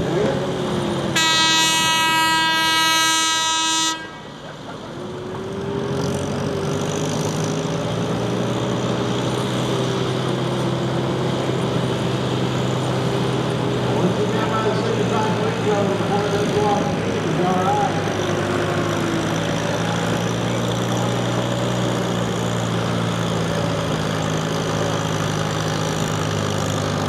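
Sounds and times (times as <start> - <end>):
loud horn steady tone: 1.1 - 4.4
tractor engine running: 4.1 - 27.0.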